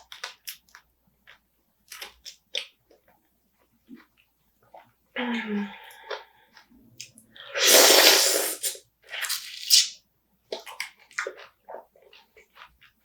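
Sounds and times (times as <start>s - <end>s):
slurping and crunching crab shell: 6.0s - 13.0s.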